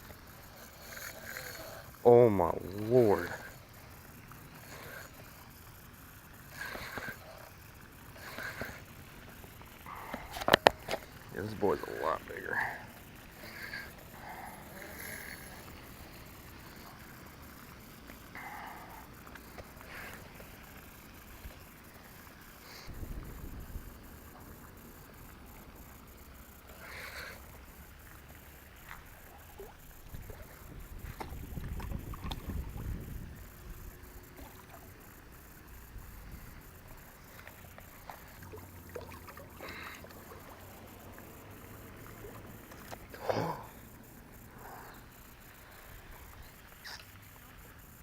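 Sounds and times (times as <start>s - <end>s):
water splashing: 0.0s - 22.7s, 28.0s - 35.1s, 36.1s - 43.6s
wind gusts on microphone: 22.9s - 24.1s, 30.1s - 33.9s.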